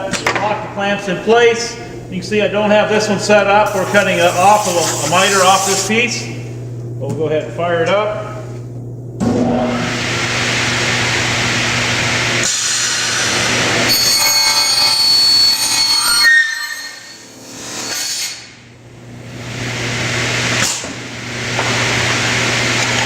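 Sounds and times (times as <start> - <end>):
saw motor humming: 3.6 - 6.3
circular saw screeching through metal: 3.7 - 6.1, 13.9 - 18.4.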